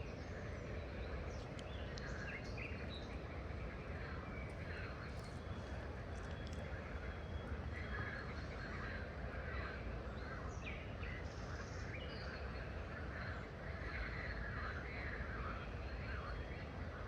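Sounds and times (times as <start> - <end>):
birds chirping: 0.0 - 13.6
low outdoor rumble: 0.0 - 17.0.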